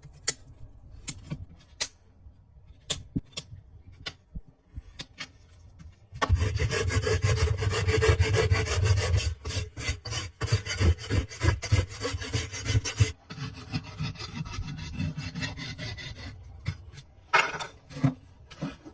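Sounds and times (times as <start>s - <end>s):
hoof rasp scraping hoof: 6.2s - 17.0s.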